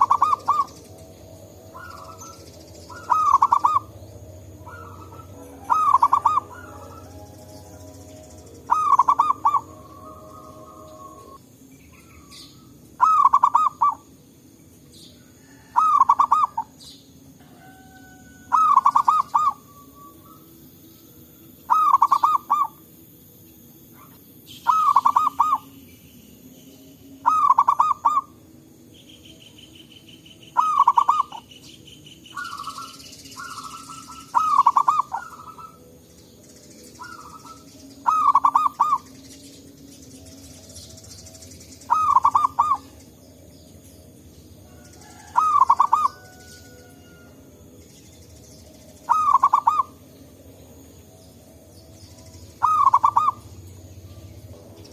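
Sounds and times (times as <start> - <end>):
faint dove calls: 0.0 - 0.7, 1.7 - 3.9, 4.6 - 7.4, 8.7 - 11.4, 12.1 - 14.0, 15.4 - 16.7, 17.5 - 20.4, 21.7 - 22.8, 24.0 - 25.7, 27.2 - 28.3, 30.6 - 31.4, 32.3 - 35.8, 37.0 - 39.0, 41.9 - 43.0, 45.1 - 46.4, 49.1 - 50.0, 52.6 - 53.5
dove cooing song: 0.0 - 14.2, 14.9 - 54.9.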